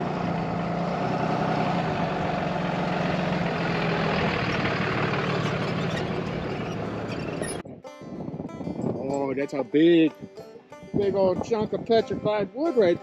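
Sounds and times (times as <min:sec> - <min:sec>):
truck engine hum: 0:00.0 - 0:08.6
road and wind rushing: 0:00.0 - 0:09.2.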